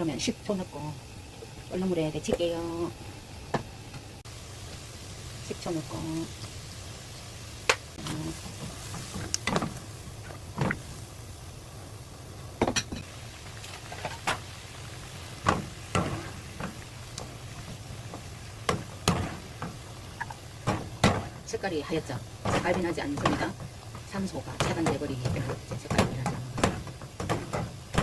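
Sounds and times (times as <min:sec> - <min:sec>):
pot and utensils clinking: 0:15.4 - 0:28.0.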